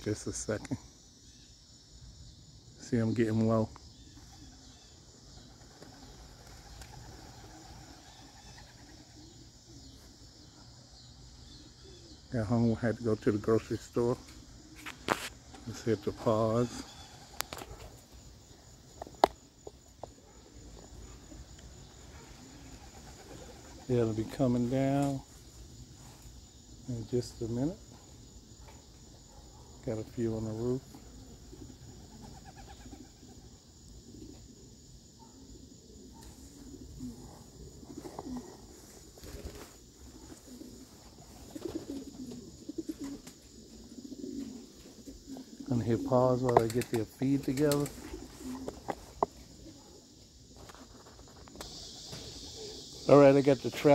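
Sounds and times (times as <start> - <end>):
crickets chirping: 0.0 - 53.9
pigeons cooing: 2.9 - 53.9.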